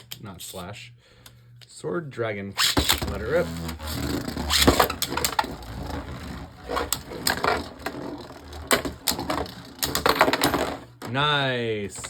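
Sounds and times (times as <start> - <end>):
spinning tops whirring: 2.6 - 11.0
tops clicking and knocking: 2.8 - 11.2.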